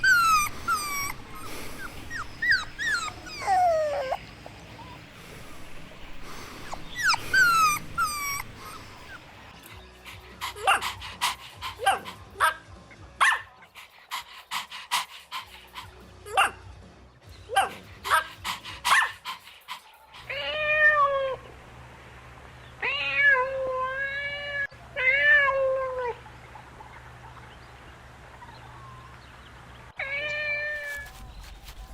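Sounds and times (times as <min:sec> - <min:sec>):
puppies crying: 0:00.0 - 0:12.6, 0:13.2 - 0:16.6, 0:17.5 - 0:21.5
puppies whimpering: 0:00.0 - 0:12.6, 0:13.2 - 0:16.5, 0:17.5 - 0:21.5
puppies yipping and barking: 0:00.0 - 0:16.6, 0:17.4 - 0:21.5.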